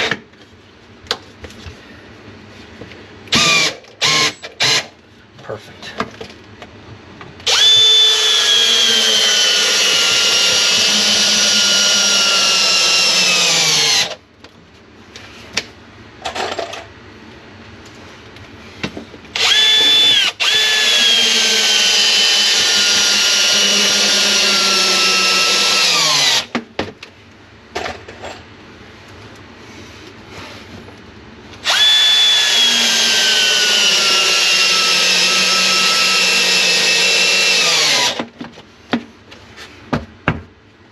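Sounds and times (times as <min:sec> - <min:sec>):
power drill driving screws: 0:03.3 - 0:04.9, 0:07.4 - 0:14.2, 0:19.4 - 0:26.5, 0:31.6 - 0:38.2.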